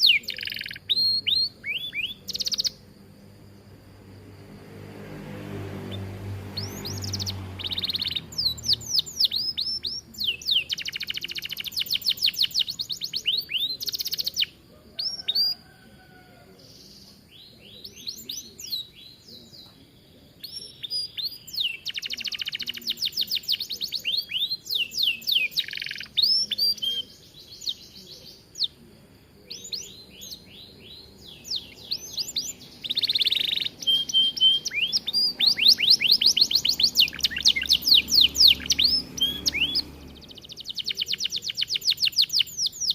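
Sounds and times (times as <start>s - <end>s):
canary singing trills: 0.0s - 4.9s, 5.5s - 42.9s.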